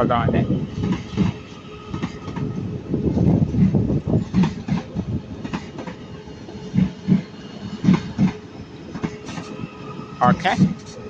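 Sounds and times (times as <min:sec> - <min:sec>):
train wheels clacking over rail joints: 0:04.2 - 0:06.0, 0:06.8 - 0:08.4.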